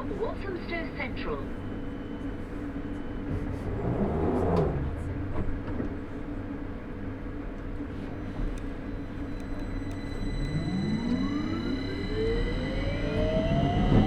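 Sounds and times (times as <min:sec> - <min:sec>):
train equipment humming: 0:00.0 - 0:14.0.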